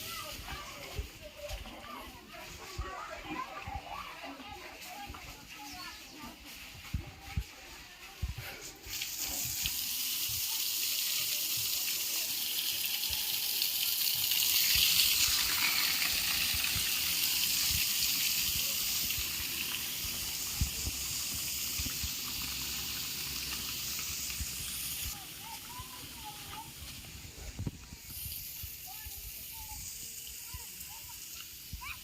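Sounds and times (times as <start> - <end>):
water running from a tap: 8.9 - 32.0.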